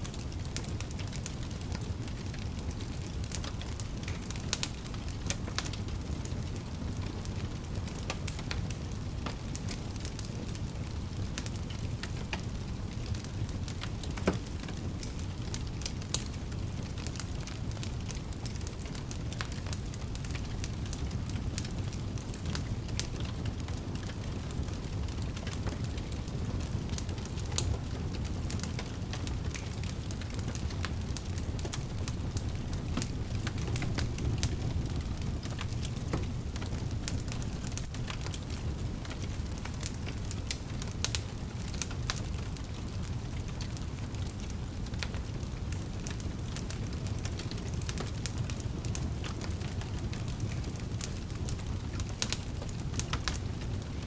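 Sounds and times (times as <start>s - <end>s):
low rumble of flames: 0.0s - 54.0s
fire pops and snaps: 0.1s - 54.0s.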